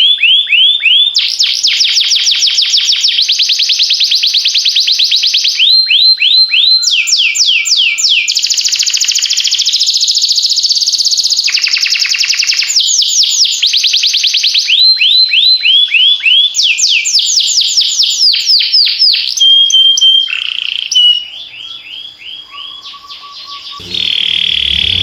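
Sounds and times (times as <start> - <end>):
canary singing trills: 19.6 - 25.0.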